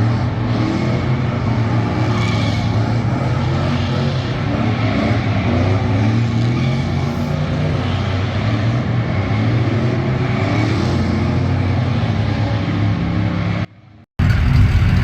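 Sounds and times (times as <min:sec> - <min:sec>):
truck engine running: 0:14.2 - 0:15.0.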